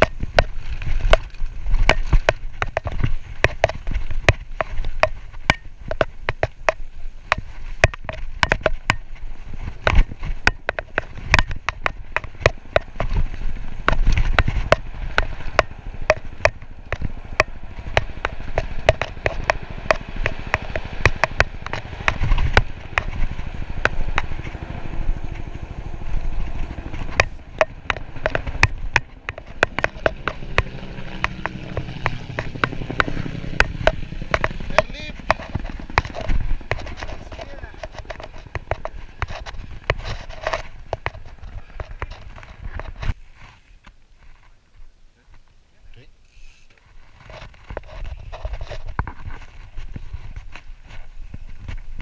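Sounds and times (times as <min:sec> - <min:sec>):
mountain bike clattering over rocks: 0:00.0 - 0:24.5
rumble of tyres: 0:00.0 - 0:52.0
wind: 0:00.0 - 0:52.0.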